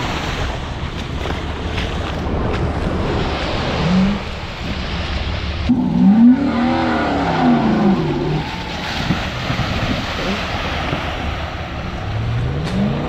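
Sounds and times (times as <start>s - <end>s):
wind rushing on microphone: 0.0s - 13.0s
diesel engine revving: 5.7s - 11.1s.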